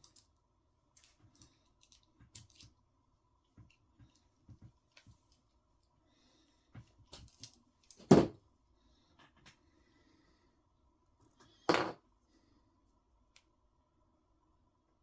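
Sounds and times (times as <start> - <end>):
light clicks of parts: 1.0 - 2.8.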